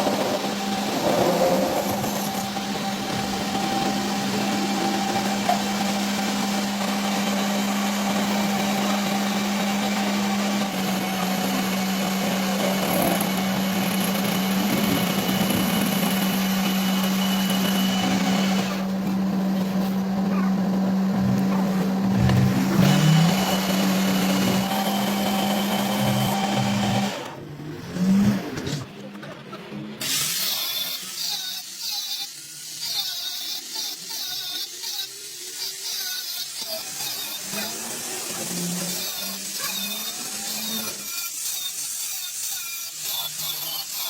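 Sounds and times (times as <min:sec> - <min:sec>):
motor-driven machine humming: 0:01.8 - 0:27.4.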